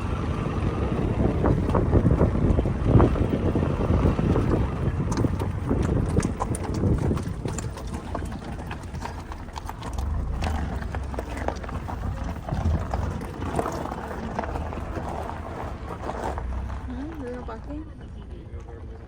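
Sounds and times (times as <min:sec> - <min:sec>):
wind buffeting microphone: 0:00.0 - 0:18.1.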